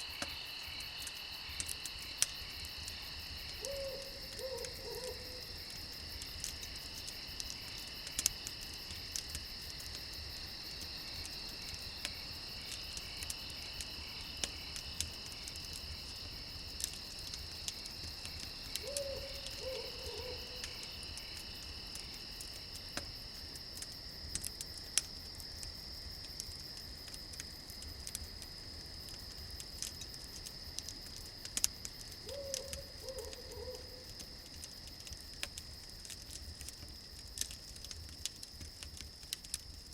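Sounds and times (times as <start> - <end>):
campfire crackling and popping: 0.0 - 39.9
crickets chirping: 0.0 - 39.9
owl hooting: 3.6 - 5.4, 18.8 - 20.6, 32.2 - 34.0.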